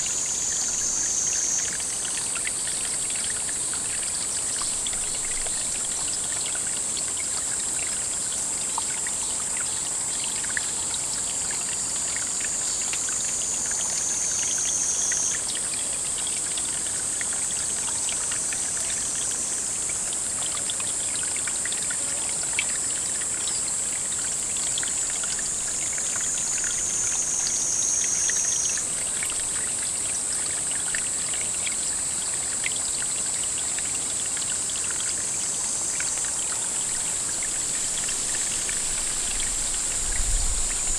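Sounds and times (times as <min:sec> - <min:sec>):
high-pitched insect drone: 0:00.0 - 0:04.6, 0:12.6 - 0:15.5, 0:25.0 - 0:29.5
water trickling: 0:00.0 - 0:40.9.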